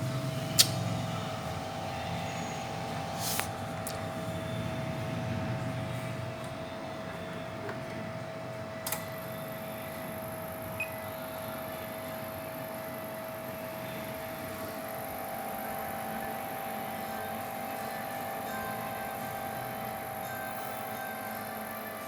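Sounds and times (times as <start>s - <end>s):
electrical hum with whine: 0.0s - 22.0s
sharp click: 0.6s - 0.8s.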